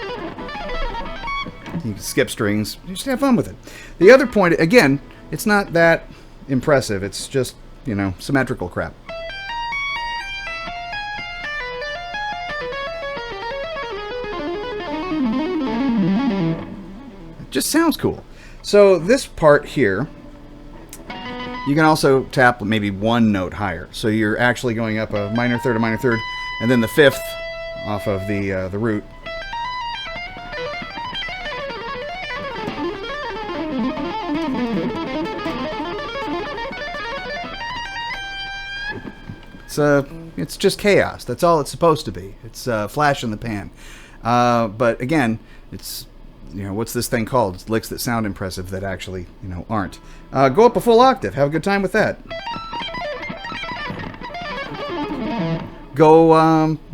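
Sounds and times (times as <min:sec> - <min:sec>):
electric guitar playing fast lick: 0:00.0 - 0:02.4, 0:09.1 - 0:17.5, 0:20.1 - 0:22.3, 0:25.0 - 0:40.4, 0:52.2 - 0:56.0.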